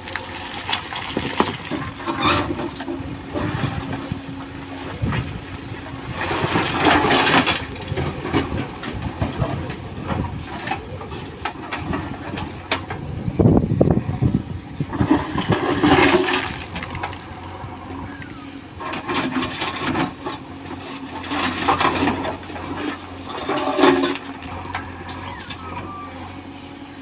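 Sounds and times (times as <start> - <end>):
machine engine running: 0.0 - 27.0
loose stones clattering: 0.1 - 2.0.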